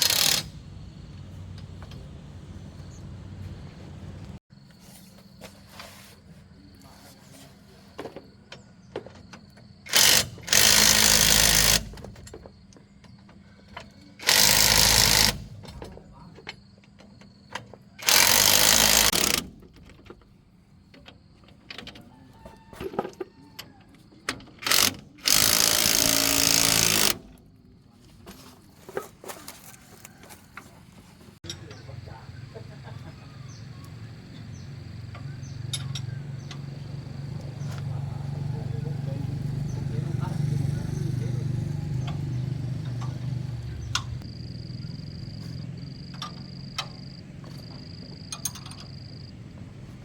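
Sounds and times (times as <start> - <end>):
power tool bursts: 0.0 - 0.6, 9.9 - 12.1, 14.2 - 15.6, 18.0 - 19.6, 24.6 - 27.3.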